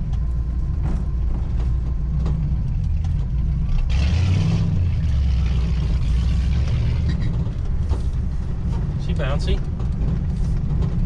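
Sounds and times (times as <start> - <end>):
car engine rumbling: 0.0 - 11.0
wind and road noise: 0.0 - 11.0.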